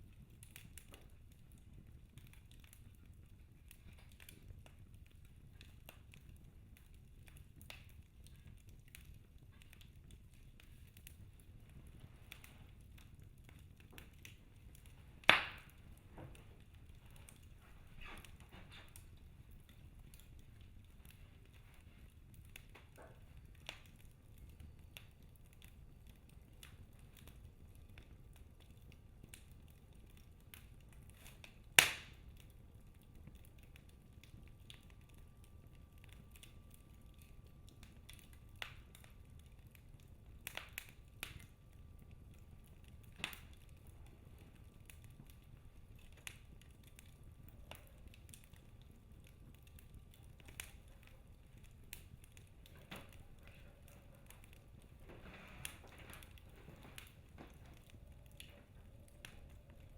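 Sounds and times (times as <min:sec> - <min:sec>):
low rumble of flames: 0:00.0 - 0:59.9
wood fire crackling: 0:00.0 - 0:59.9.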